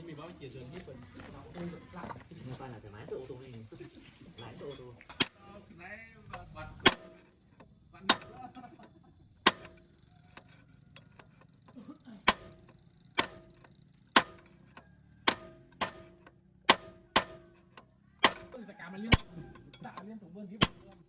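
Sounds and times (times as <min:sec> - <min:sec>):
hammer striking metal: 0:04.6 - 0:05.4, 0:06.3 - 0:11.4, 0:12.2 - 0:21.0.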